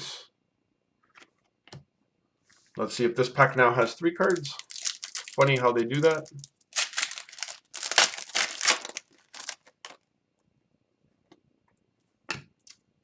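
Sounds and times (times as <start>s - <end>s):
foil wrapper crinkling and tearing: 4.2s - 10.0s.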